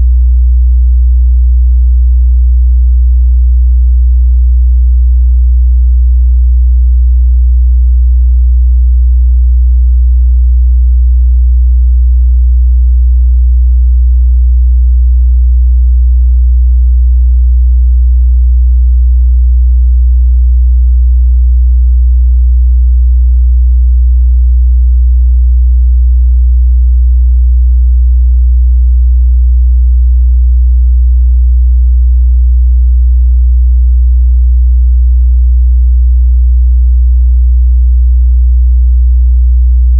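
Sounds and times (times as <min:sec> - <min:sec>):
low sine-wave test tone: 0:00.0 - 0:35.7, 0:36.3 - 0:39.9.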